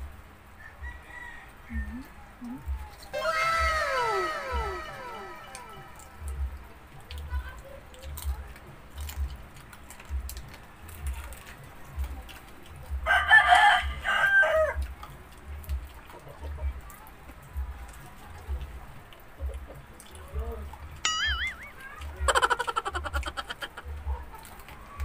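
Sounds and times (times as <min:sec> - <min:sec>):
rooster crowing: 0:00.6 - 0:02.1, 0:03.1 - 0:06.4, 0:13.1 - 0:14.8
warbling high-pitched call: 0:03.1 - 0:06.5, 0:21.1 - 0:21.8.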